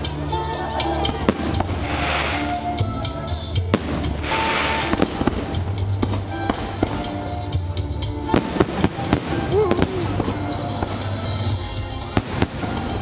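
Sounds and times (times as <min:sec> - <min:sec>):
fireworks hissing crackle: 0:00.0 - 0:13.0
music: 0:00.0 - 0:13.0
fireworks bangs: 0:01.1 - 0:02.7, 0:03.6 - 0:07.4, 0:08.2 - 0:13.0.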